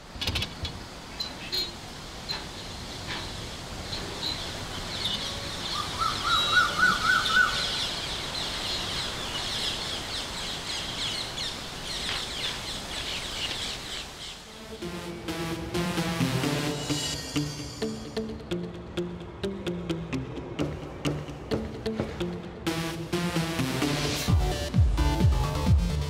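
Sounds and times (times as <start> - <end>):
birds chirping: 0.4 - 14.6.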